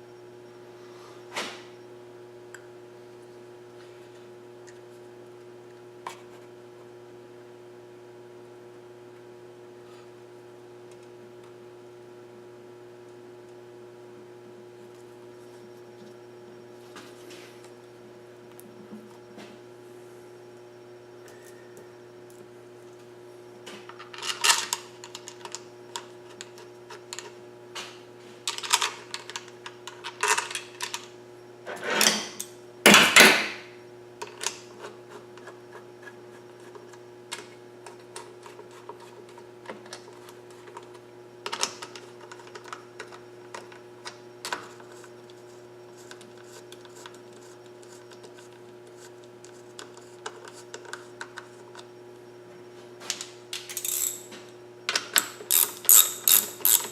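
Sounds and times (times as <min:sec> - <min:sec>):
steady electrical hum: 0:00.0 - 0:56.9
metal parts and tools clattering: 0:53.7 - 0:54.4.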